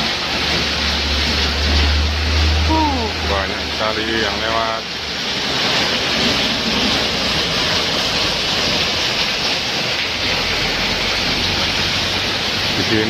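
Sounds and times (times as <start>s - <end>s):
heavy rain on a flooded road: 0.0s - 13.0s
truck driving through water: 0.0s - 13.0s.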